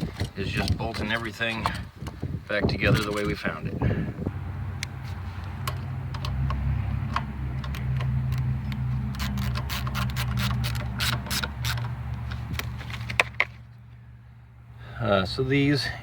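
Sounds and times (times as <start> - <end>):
ratchet wrench clicking: 6.2 - 12.0.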